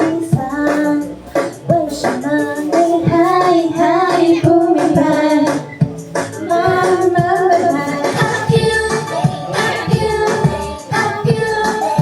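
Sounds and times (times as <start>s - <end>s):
steady beat: 0.0s - 12.0s
woman singing pop song: 0.0s - 12.0s.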